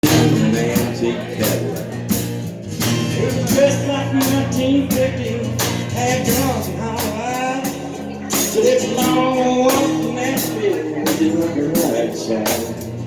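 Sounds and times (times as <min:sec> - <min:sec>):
blues-rock band playing live: 0:00.0 - 0:13.0.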